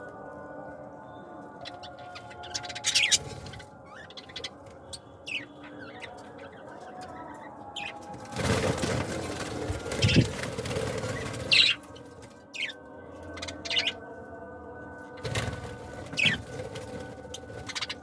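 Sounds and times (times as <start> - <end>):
birds chirping: 0.0 - 14.3, 15.1 - 18.0
wings fluttering: 7.8 - 12.7, 15.2 - 18.0.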